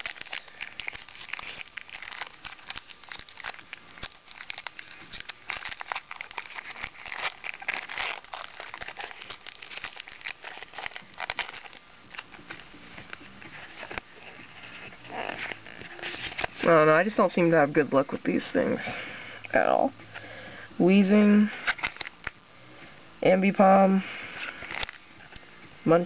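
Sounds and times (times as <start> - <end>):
foil wrappers crinkling and tearing: 0.0 - 17.4, 21.5 - 22.4, 24.3 - 25.4.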